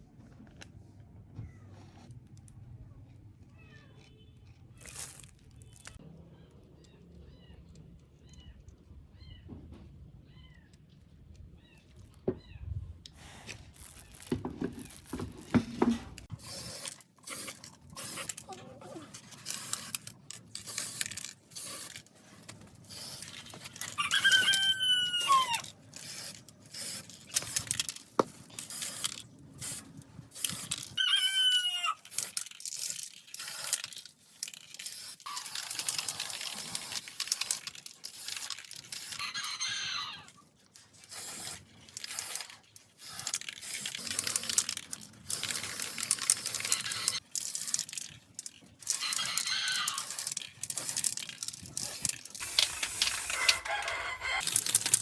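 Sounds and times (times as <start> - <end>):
clicking and scraping of hand work: 13.0 - 31.1, 31.9 - 39.4, 40.2 - 55.0
rooster crowing: 24.0 - 25.6, 53.2 - 54.4.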